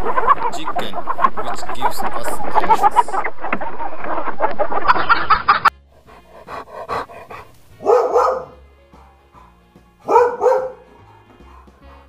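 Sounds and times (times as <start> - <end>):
chicken clucking: 0.0 - 5.7
soft background music: 5.7 - 12.0
dog barking: 6.8 - 9.2, 10.0 - 11.8.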